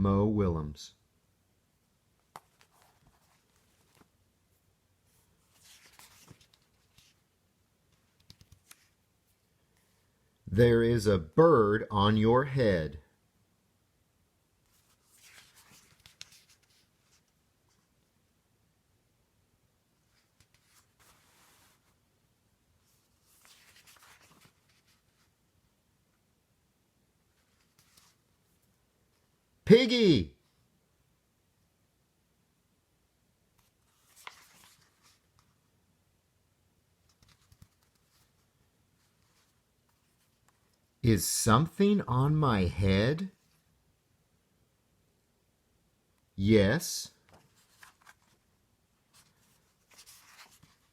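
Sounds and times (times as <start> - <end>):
book pages turning: 2.3 - 4.2, 5.2 - 7.3, 7.9 - 9.0, 14.7 - 17.9, 20.1 - 22.0, 22.8 - 25.3, 27.3 - 28.3, 33.6 - 35.6, 37.0 - 40.9, 47.2 - 50.9
paper rustling: 2.3 - 4.2, 5.0 - 7.3, 7.9 - 9.0, 14.7 - 17.9, 20.0 - 22.0, 22.8 - 25.4, 27.3 - 28.7, 33.6 - 35.6, 37.0 - 40.9, 47.2 - 50.9.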